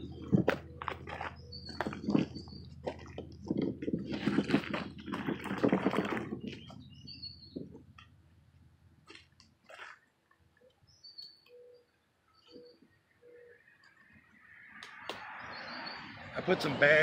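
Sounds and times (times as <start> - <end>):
small birds chirping: 0.0 - 4.4, 6.3 - 8.1, 10.5 - 16.3
rough rustling scraping: 0.0 - 7.9.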